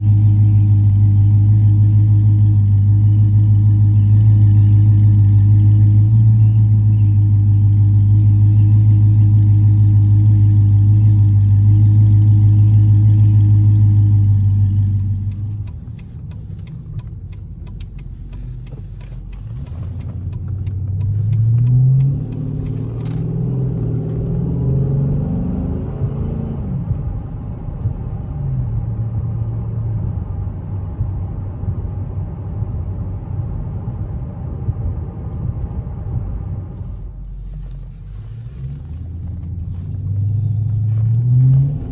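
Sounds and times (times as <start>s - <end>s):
car exhaust droning: 0.0s - 41.9s
faint clicks: 15.2s - 23.2s
engine revving up: 17.6s - 27.0s, 38.0s - 41.9s.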